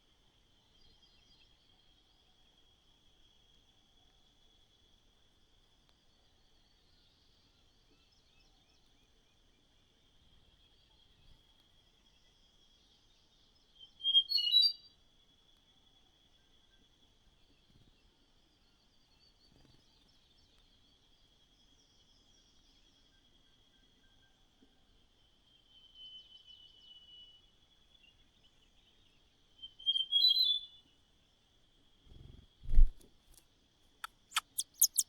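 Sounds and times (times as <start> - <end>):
small bird chirping: 32.1 - 33.0, 34.0 - 35.0.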